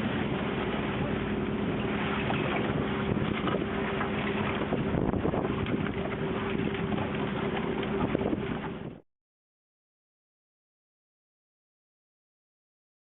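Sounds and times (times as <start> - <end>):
boat engine humming: 0.0 - 9.0
wind noise on microphone: 2.1 - 9.0.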